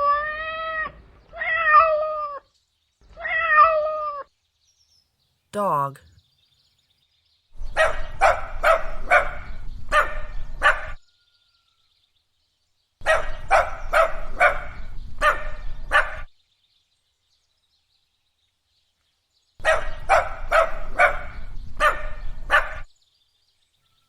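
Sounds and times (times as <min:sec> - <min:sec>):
dog barking: 0:07.7 - 0:11.0, 0:13.0 - 0:16.3, 0:19.6 - 0:22.9.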